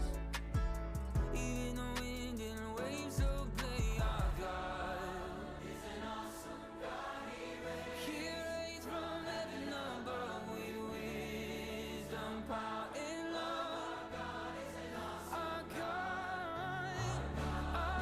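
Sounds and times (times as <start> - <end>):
sustained low bass notes: 0.0 - 4.7
choir singing worship song: 4.0 - 18.0.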